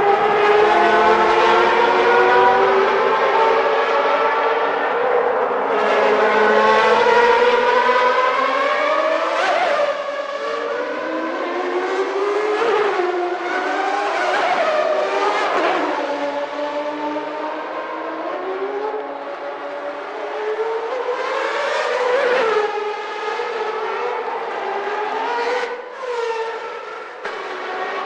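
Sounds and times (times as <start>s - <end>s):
racing car engine revving: 0.0s - 19.2s
racing cars passing by: 0.0s - 28.0s.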